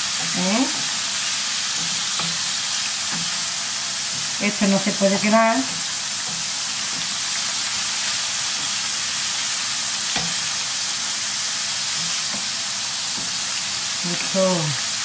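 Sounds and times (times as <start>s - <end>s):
wooden spoon stirring in a pan: 0.0s - 10.9s
oil sizzling: 0.0s - 15.0s.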